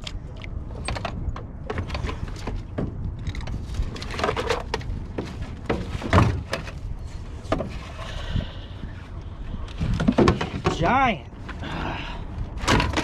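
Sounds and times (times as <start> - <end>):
knocks and thumps in a boat: 0.0 - 8.1, 9.7 - 11.0, 12.6 - 13.0
low steady rumble: 0.0 - 13.0.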